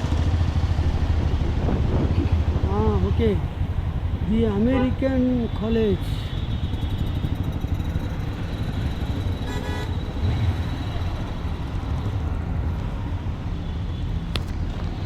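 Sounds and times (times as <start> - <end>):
vehicle engine and road noise: 0.0 - 15.0
vehicle horn toot: 4.6 - 7.3, 9.4 - 10.0.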